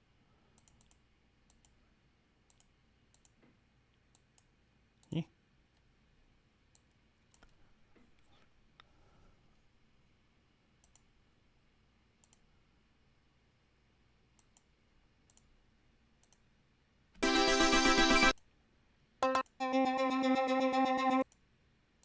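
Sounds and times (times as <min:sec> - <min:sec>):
faint clicks: 0:00.6 - 0:01.8, 0:02.5 - 0:05.9, 0:10.8 - 0:11.1, 0:12.2 - 0:12.5, 0:14.4 - 0:15.5, 0:16.2 - 0:16.5
synthesizer note: 0:17.2 - 0:18.3, 0:19.2 - 0:21.2.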